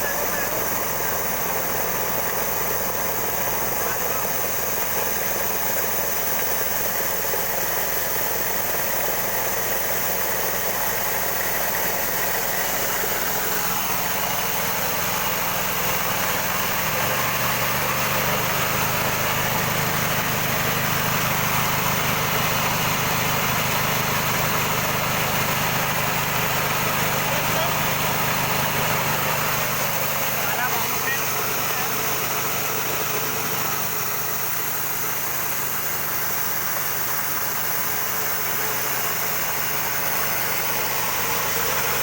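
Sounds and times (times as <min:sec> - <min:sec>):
grinding machine drone with hiss: 0:00.0 - 0:42.0.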